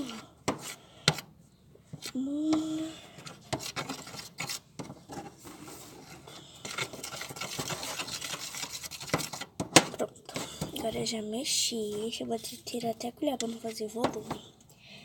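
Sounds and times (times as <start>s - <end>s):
spoon scraping plastic plate: 0.0s - 1.3s, 1.9s - 14.4s.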